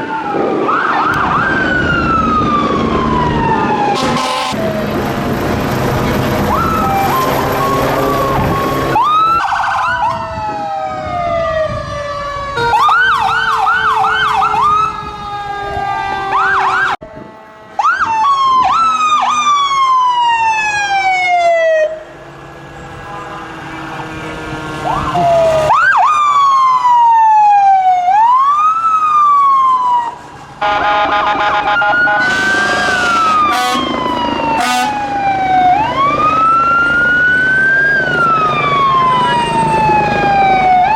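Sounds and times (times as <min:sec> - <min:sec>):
emergency sirens wailing and yelping: 0:00.0 - 0:40.9
heavy engine noise: 0:00.1 - 0:27.1, 0:29.1 - 0:40.9
multi-tone horn blast: 0:03.9 - 0:04.6, 0:30.6 - 0:35.1.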